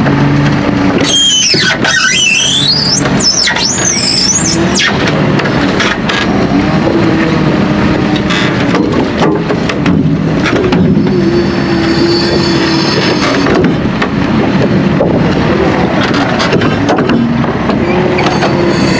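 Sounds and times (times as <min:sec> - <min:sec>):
tractor and muck spreader running: 0:00.0 - 0:18.9
high-pitched wavering squeal: 0:01.0 - 0:05.1, 0:11.0 - 0:13.6, 0:17.8 - 0:18.9.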